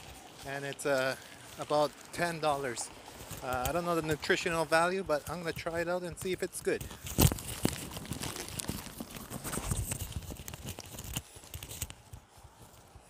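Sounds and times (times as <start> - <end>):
person biting into sandwich: 6.9 - 12.1.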